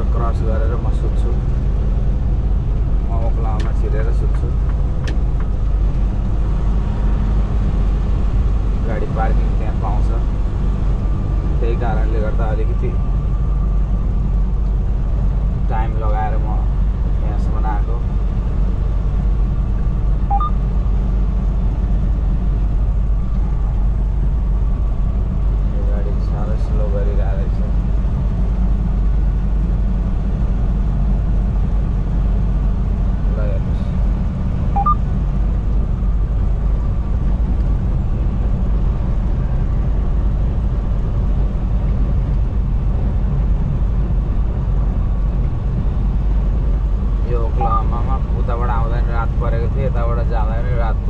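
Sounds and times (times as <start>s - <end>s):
road noise: 0.0s - 51.0s
truck engine drone: 0.0s - 51.0s
two-note rising beep: 20.3s - 20.6s, 34.8s - 35.0s.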